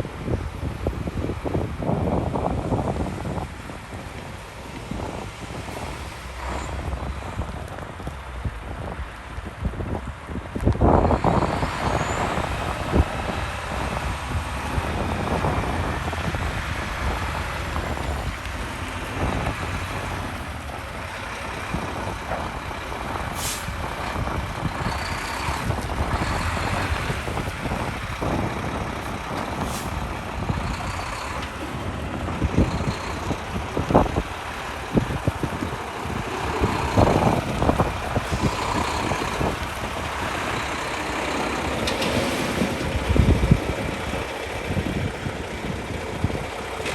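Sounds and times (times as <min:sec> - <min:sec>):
diesel truck engine running: 0:00.0 - 0:46.9
short air hisses: 0:23.4 - 0:23.8.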